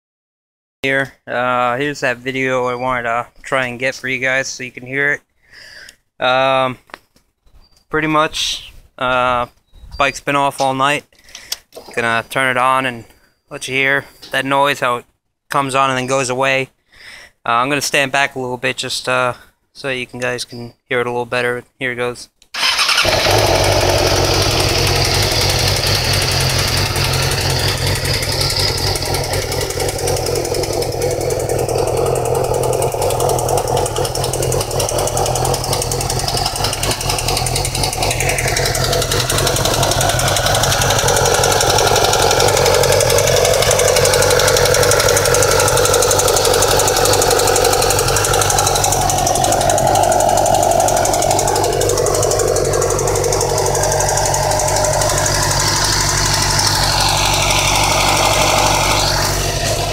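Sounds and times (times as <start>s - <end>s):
engine ticking: 22.6s - 59.9s
motorcycle engine idling: 22.6s - 59.9s.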